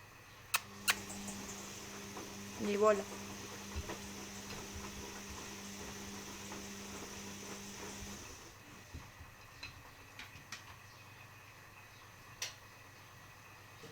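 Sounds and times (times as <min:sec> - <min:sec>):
faint clicks: 0:00.6 - 0:08.2
washing machine humming: 0:00.6 - 0:09.5.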